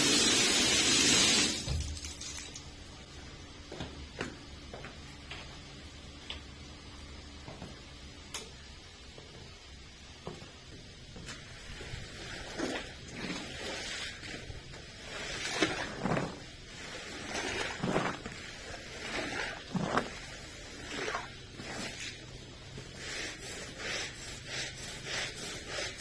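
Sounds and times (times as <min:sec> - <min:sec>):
cleaning tool strokes on carpet: 0:11.3 - 0:26.0.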